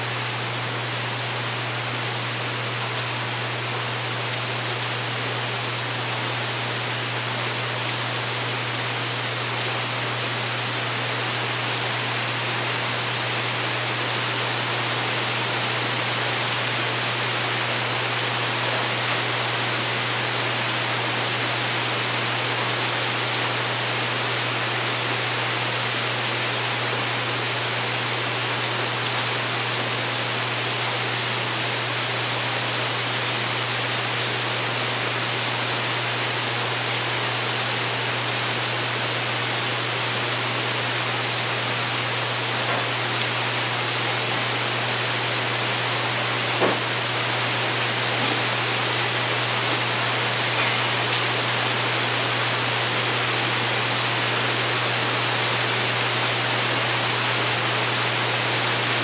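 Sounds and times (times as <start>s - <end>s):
rain on a roof: 0.0s - 59.0s.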